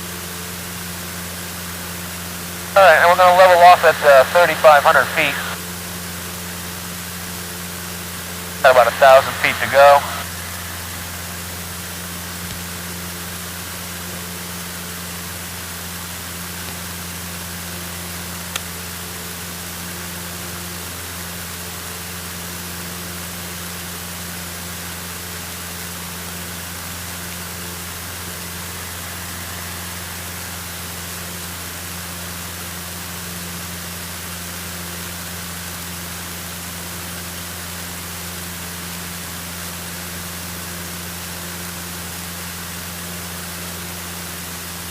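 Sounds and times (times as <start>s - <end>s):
aircraft engine drone: 1.1s - 14.7s, 25.4s - 33.8s.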